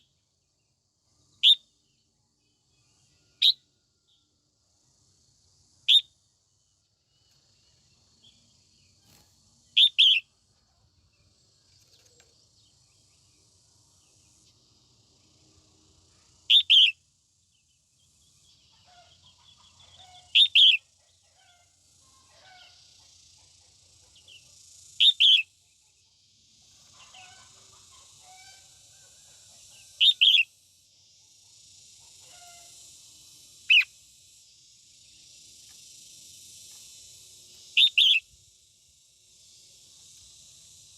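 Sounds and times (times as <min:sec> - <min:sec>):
faint small chirps: 0:05.8 - 0:14.8
high hiss: 0:26.5 - 0:40.9.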